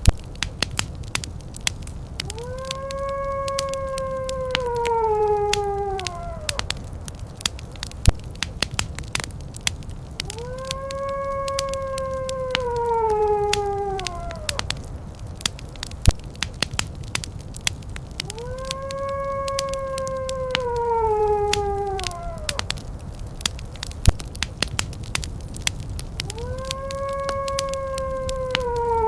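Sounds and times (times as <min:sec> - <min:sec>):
wood fire crackling: 0:00.0 - 0:29.0
long howl sliding down: 0:02.2 - 0:07.5, 0:10.2 - 0:15.8, 0:18.1 - 0:23.9, 0:25.6 - 0:29.0.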